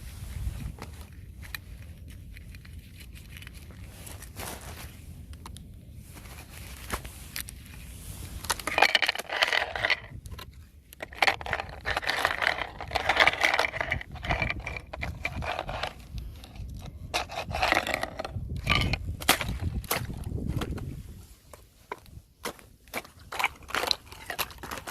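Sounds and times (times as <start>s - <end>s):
ice being scraped and crunched: 6.1s - 21.6s, 22.5s - 24.9s
ice clicks and cracks: 8.4s - 20.9s, 22.4s - 24.9s.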